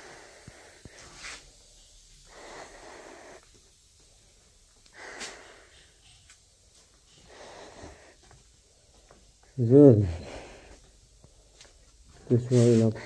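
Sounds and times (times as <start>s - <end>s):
person breathing softly: 0.0s - 1.6s, 2.2s - 3.5s, 4.9s - 5.9s, 7.1s - 9.0s, 9.9s - 13.0s.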